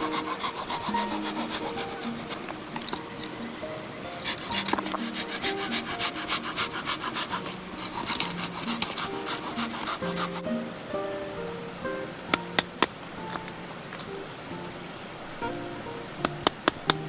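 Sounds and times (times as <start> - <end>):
saw rasping through wood: 0.0 - 2.5, 4.1 - 10.5
plucked-string background music: 0.0 - 17.0.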